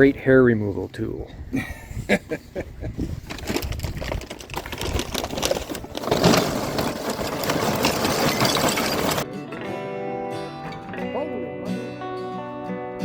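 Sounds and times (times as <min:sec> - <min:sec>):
small motor rattling: 0:03.4 - 0:09.2
acoustic guitar music: 0:07.4 - 0:13.0.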